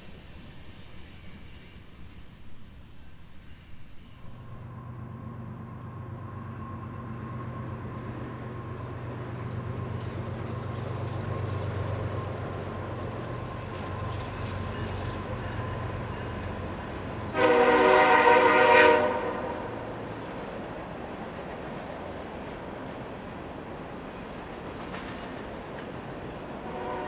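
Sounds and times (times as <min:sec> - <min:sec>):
locomotive engine rumble: 0:04.5 - 0:27.0
locomotive air horn: 0:17.2 - 0:20.0, 0:26.6 - 0:27.0.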